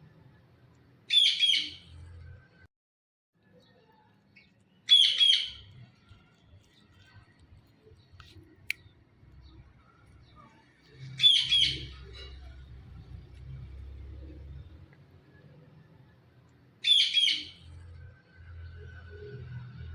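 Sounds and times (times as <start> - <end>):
parakeet calling: 1.1 - 1.9, 4.9 - 5.7, 11.1 - 12.1, 16.8 - 17.6.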